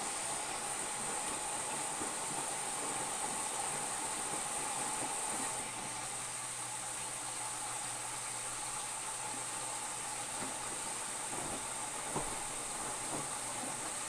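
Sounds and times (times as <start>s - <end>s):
washing machine running: 0.0s - 14.0s.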